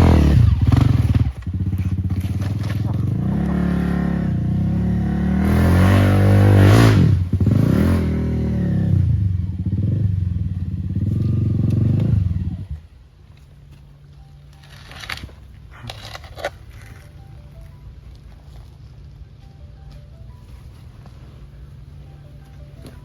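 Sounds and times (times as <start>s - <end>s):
dirt bike engine revving: 0.0s - 12.8s.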